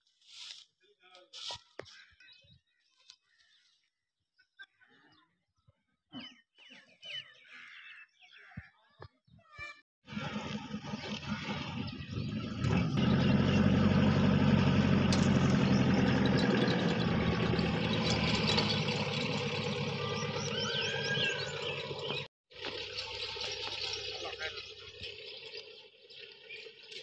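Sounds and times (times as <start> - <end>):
vehicle engine idling: 10.1 - 24.9.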